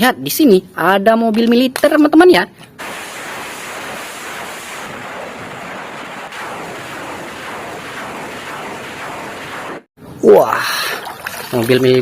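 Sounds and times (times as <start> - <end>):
water spraying: 2.8 - 9.9.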